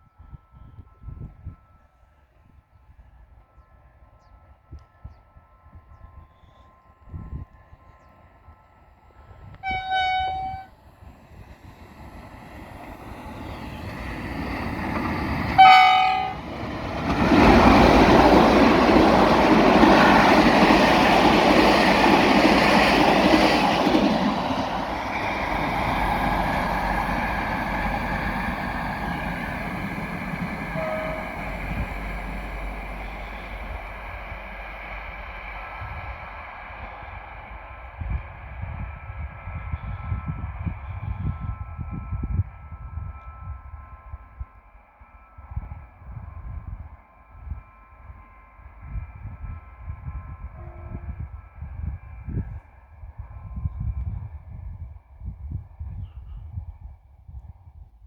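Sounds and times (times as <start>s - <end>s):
train rumbling past: 5.6s - 57.4s
train horn blasts: 9.6s - 10.8s, 14.5s - 18.6s, 25.1s - 34.6s, 50.4s - 51.4s.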